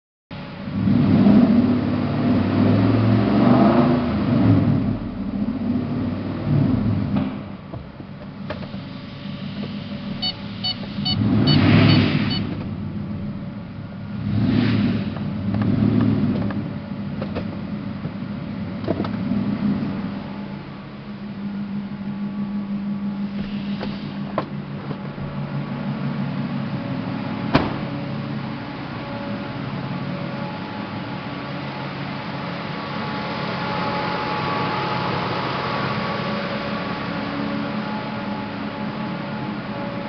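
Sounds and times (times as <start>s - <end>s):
engine revving: 0.7s - 7.4s, 10.2s - 12.6s, 14.1s - 16.7s, 32.2s - 39.5s.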